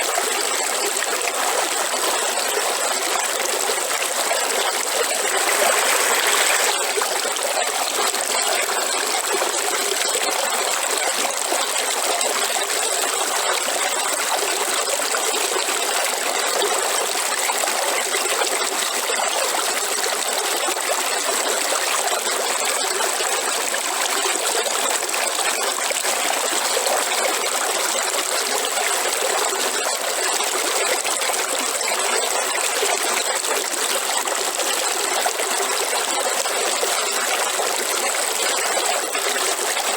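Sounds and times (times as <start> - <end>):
river water flowing: 0.0 - 19.8.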